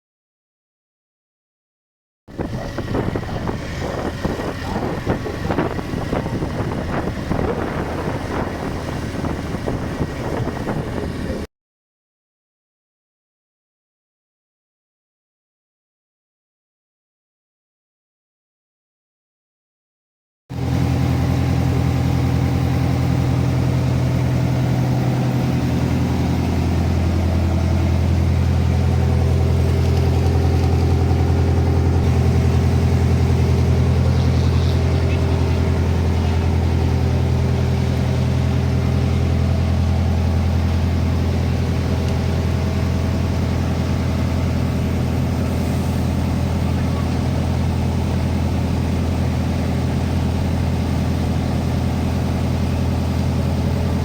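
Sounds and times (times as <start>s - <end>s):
truck engine running at low revs: 2.3s - 11.5s, 20.5s - 54.0s.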